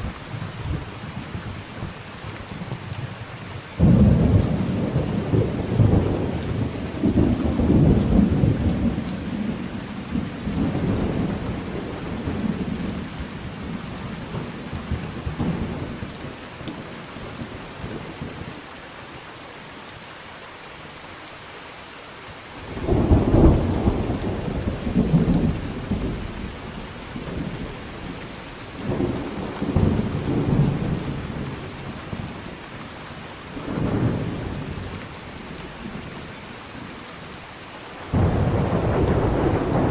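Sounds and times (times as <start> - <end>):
steady rain: 0.0 - 39.9
thunder rumbling: 3.8 - 16.2, 22.7 - 28.2, 28.8 - 32.5, 38.1 - 39.9.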